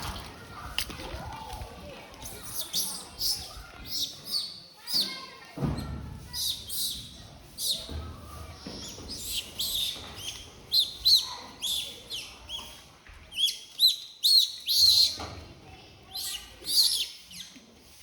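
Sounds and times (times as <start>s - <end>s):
high-pitched chirping calls: 2.2s - 5.2s, 6.3s - 7.9s, 8.8s - 15.2s, 16.1s - 17.5s.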